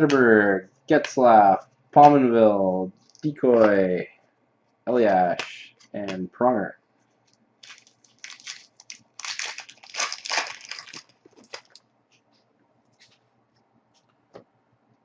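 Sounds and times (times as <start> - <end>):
cards clicking and rustling: 3.0 - 3.8, 7.6 - 11.8
foil wrapper crinkling: 7.2 - 11.8.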